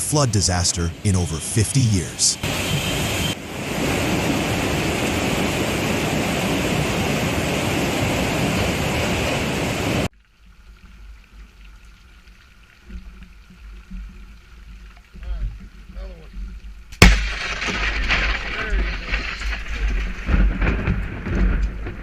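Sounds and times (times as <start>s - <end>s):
floodwater rushing: 0.0s - 16.3s.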